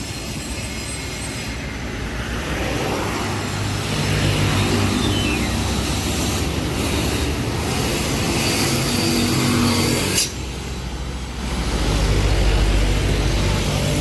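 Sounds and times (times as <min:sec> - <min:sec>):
truck diesel engine under load: 0:00.0 - 0:14.0.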